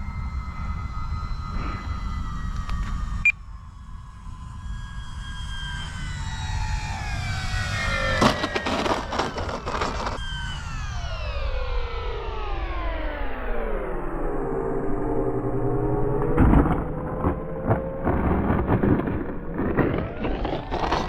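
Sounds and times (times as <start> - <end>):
rough buffeting noise: 0.0 - 10.2, 16.2 - 21.0
model airplane motor buzzing: 0.0 - 13.7
wind rumbling on microphone: 14.9 - 21.0.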